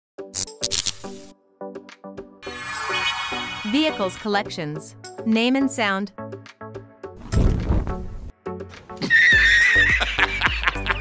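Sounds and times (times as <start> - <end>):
background music: 0.2 - 11.0
horse whinnying: 9.0 - 10.0.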